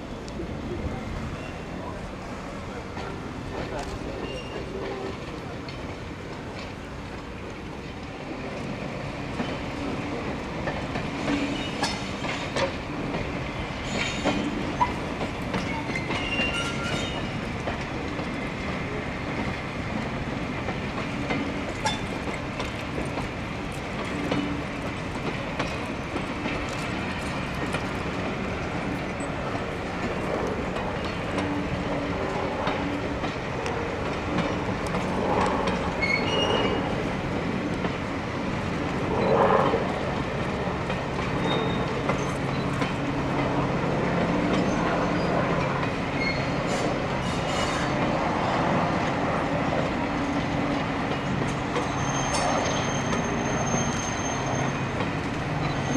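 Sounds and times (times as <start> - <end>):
train wheels clicking over rails: 1.8 - 55.9
high wheel squeal: 4.0 - 4.8, 15.6 - 17.4, 35.9 - 37.1, 41.4 - 42.8, 46.1 - 48.0, 51.8 - 55.0, 55.6 - 55.9.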